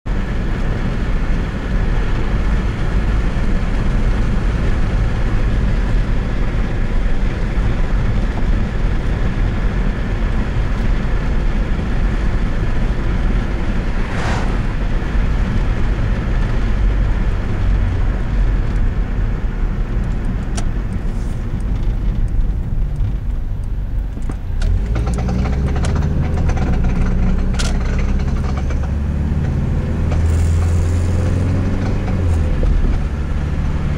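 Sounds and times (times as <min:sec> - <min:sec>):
road and engine noise: 0:00.0 - 0:33.9
low hum: 0:13.2 - 0:16.9.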